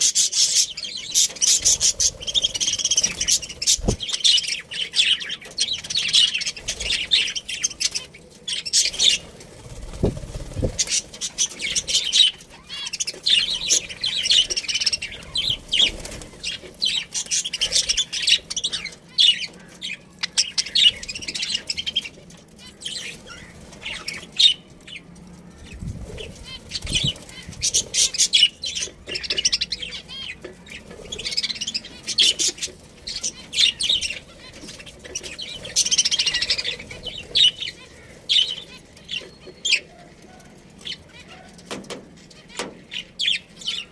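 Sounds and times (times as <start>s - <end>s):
budgerigars chirping: 0.0s - 24.7s, 26.0s - 40.0s
wing flapping: 1.2s - 4.7s, 8.7s - 12.5s, 13.1s - 18.0s, 25.7s - 28.3s.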